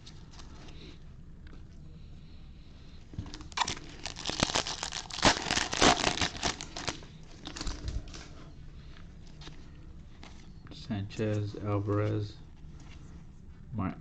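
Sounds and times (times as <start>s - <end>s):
foil wrapper crinkling and tearing: 3.2s - 8.3s.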